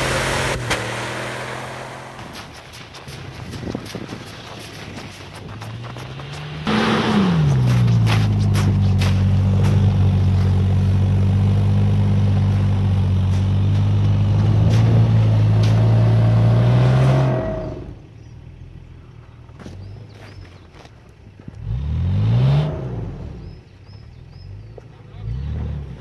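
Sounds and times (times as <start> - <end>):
engine running at steady revs: 0.0 - 18.3.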